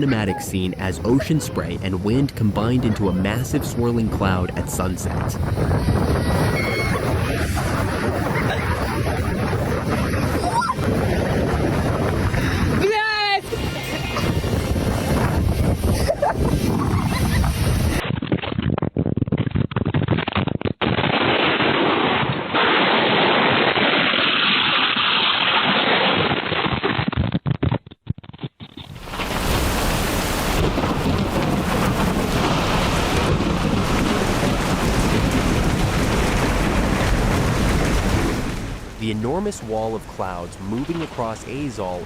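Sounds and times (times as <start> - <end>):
storm wind: 0.0 - 26.9, 28.8 - 42.0
thunder rumbling: 0.3 - 18.0, 29.0 - 42.0
heavy rain: 3.2 - 18.0, 28.9 - 42.0.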